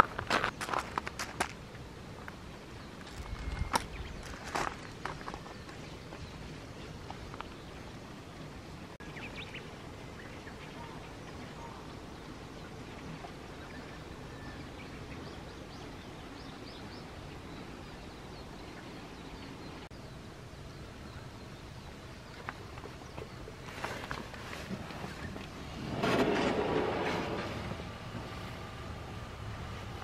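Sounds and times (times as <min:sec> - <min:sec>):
steady low rush: 0:25.4 - 0:30.0.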